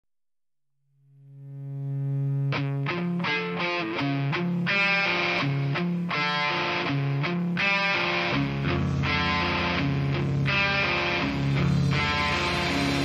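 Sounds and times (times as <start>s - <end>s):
electric guitar strumming chords: 1.1s - 13.0s
bass line: 8.2s - 13.0s.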